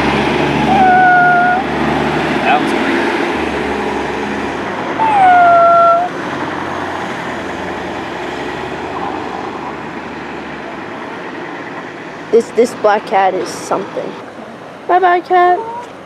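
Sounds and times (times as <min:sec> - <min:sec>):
traffic noise: 0:00.0 - 0:16.0
cat meowing: 0:00.7 - 0:01.7, 0:05.0 - 0:06.1, 0:15.4 - 0:15.9.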